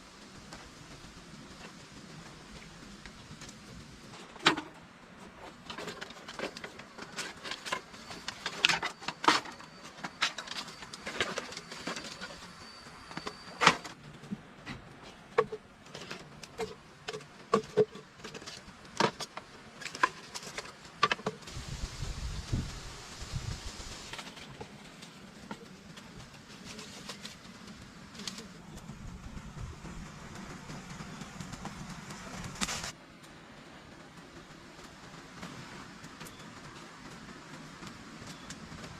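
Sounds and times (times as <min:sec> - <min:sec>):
faint high whine: 0:06.7 - 0:14.8.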